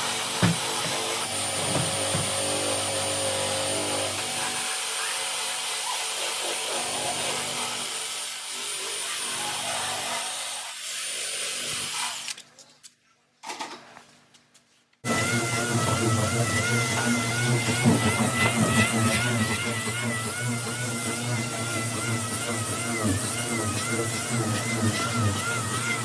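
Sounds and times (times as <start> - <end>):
power tool rubbing metal: 15.0 - 26.0.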